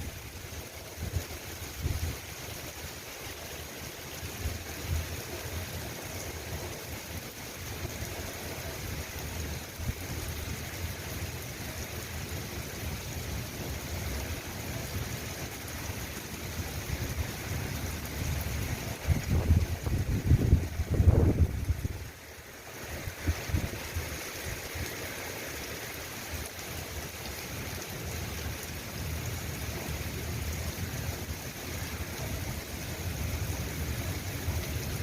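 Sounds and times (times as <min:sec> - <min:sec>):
steady rain: 0:00.0 - 0:35.0
wind buffeting microphone: 0:18.6 - 0:22.1.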